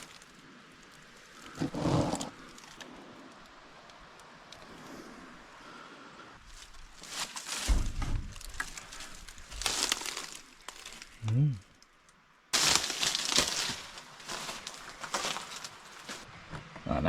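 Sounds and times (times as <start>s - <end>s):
footsteps crunching through dry bush: 6.4s - 11.2s, 12.6s - 16.3s.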